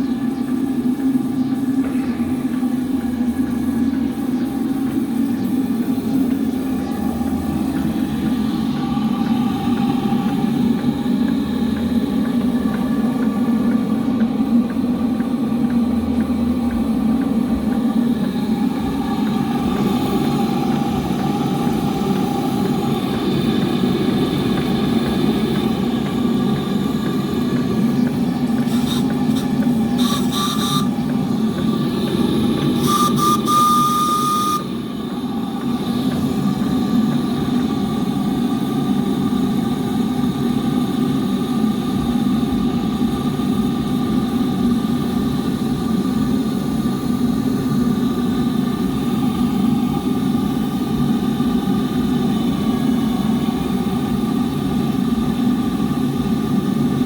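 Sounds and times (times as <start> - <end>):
steam traction engine running: 0.0 - 57.0
steam whistle blowing: 30.0 - 31.0, 32.7 - 34.8.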